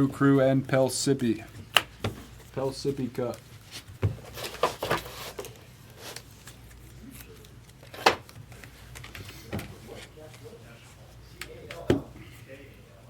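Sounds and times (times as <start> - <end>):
cards rustling and clicking: 1.6 - 10.5.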